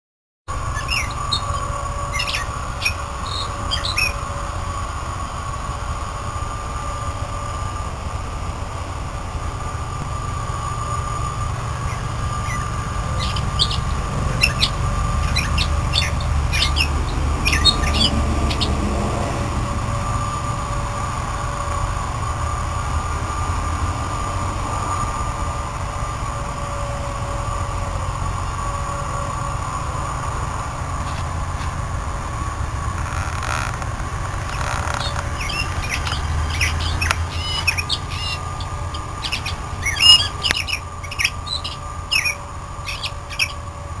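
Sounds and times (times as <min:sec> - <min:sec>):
low rumble and hum: 0:00.5 - 0:44.0
bird chirping: 0:00.6 - 0:04.3, 0:11.8 - 0:18.9, 0:31.0 - 0:31.7, 0:34.4 - 0:43.6.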